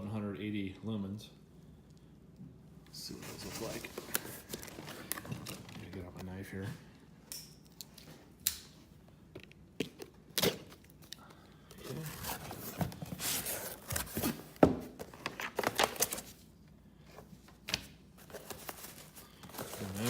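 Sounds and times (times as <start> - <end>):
packaging crinkling and tearing: 15.1 - 16.4, 18.2 - 20.0.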